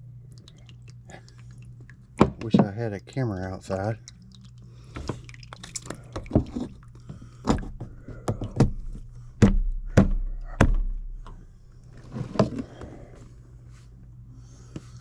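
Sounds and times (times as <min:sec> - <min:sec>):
low hum: 0:00.0 - 0:15.0
sharp knocks and clunks: 0:07.4 - 0:11.2.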